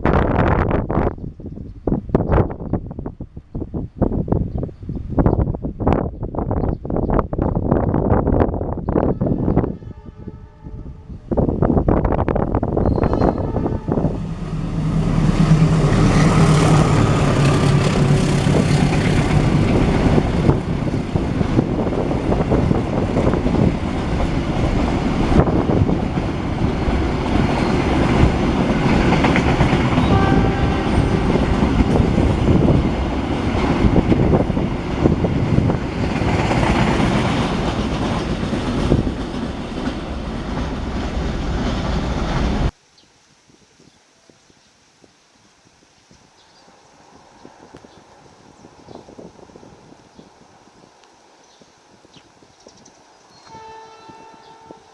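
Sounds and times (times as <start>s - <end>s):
diesel train engine: 13.5s - 42.7s.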